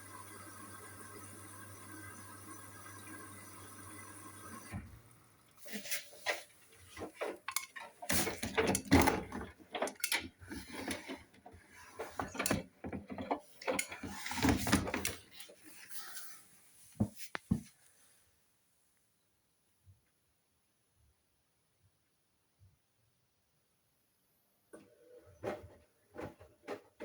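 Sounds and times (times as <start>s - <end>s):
washing machine water filling hum: 0.0s - 15.7s
clattering and knocks: 6.8s - 15.3s.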